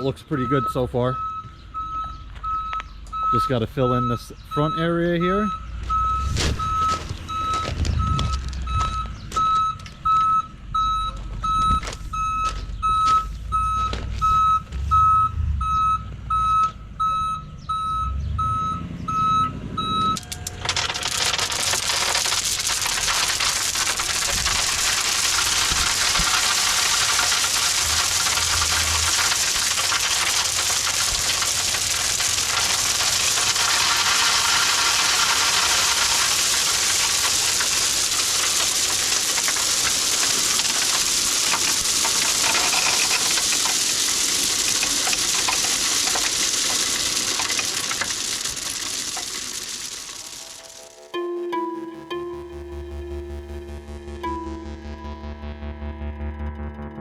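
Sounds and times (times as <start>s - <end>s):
truck engine: 0.0s - 57.0s
truck reversing beeper: 0.0s - 57.0s
gravel sliding out of dump bed: 6.0s - 9.0s, 20.5s - 50.8s.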